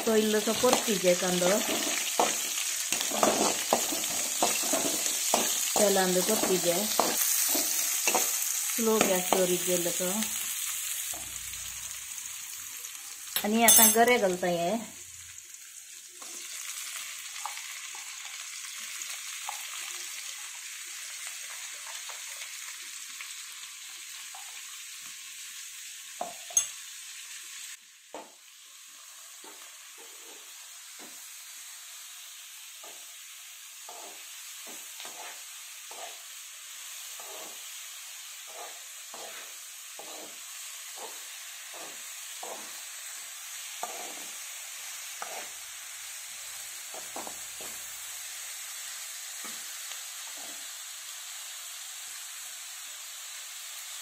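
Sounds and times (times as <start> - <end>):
food sizzling in a pan: 0.0 - 54.0
spoon scraping the pan: 0.5 - 9.6, 33.8 - 45.9.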